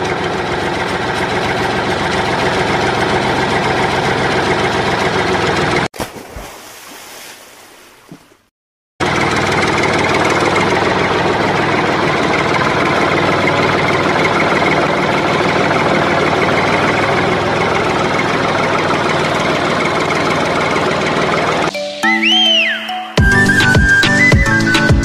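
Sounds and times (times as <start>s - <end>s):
motor running steadily: 0.0s - 5.9s, 9.0s - 21.7s.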